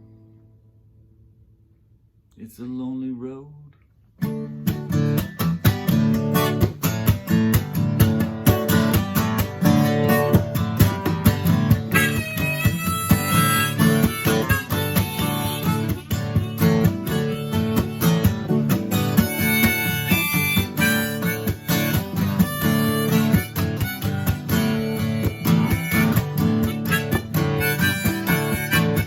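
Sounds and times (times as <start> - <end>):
acoustic guitar strumming: 4.2 - 29.0
harmonica melody: 8.0 - 29.0.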